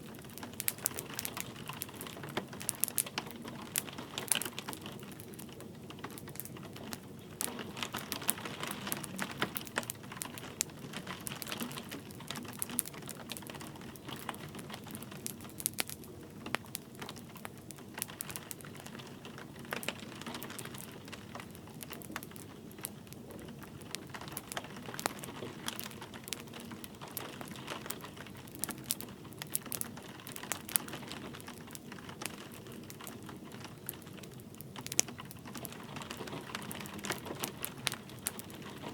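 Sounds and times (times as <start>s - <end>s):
light rain hissing: 0.0s - 38.9s
wood fire crackling and popping: 0.0s - 38.9s.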